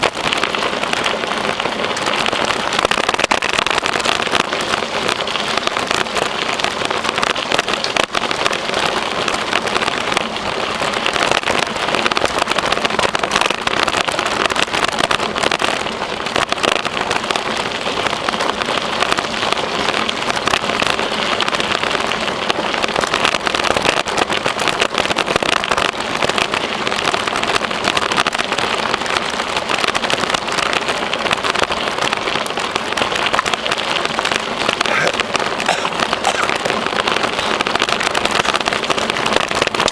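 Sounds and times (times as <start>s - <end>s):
bicycle tyres rolling on trail: 0.0s - 39.9s.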